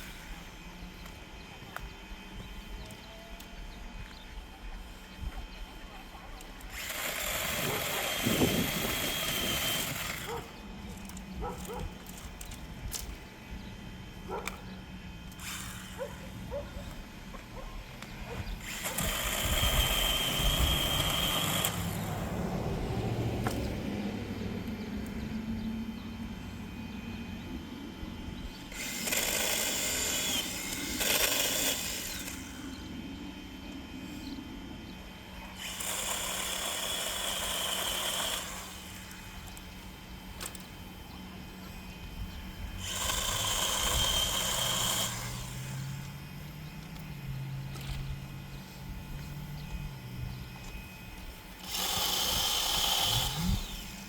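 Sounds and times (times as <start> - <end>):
electric chainsaw whining: 6.4 - 54.0.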